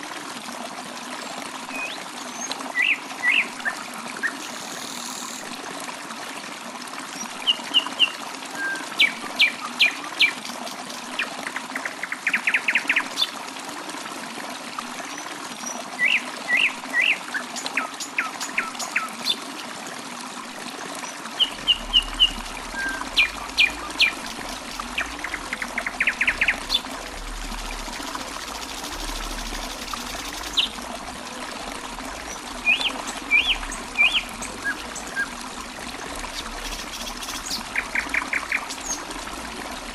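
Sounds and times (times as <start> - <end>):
water trickling: 0.0 - 39.9
songbird singing: 7.4 - 11.0, 21.4 - 30.8, 32.2 - 35.4.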